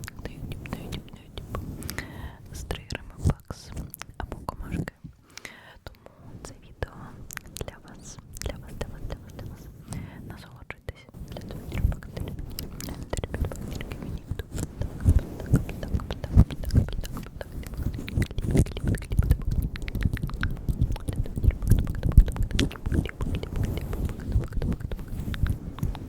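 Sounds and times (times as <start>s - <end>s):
wet mouth clicks and smacks: 3.3s - 6.0s, 7.3s - 7.7s, 11.3s - 26.0s
soft low thumps: 11.2s - 26.0s.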